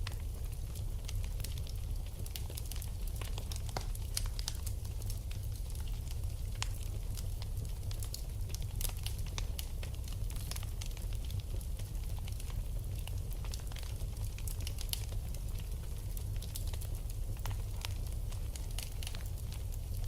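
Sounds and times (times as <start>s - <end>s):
fire crackling and popping: 0.0s - 20.0s
low rumble of fire: 0.0s - 20.0s.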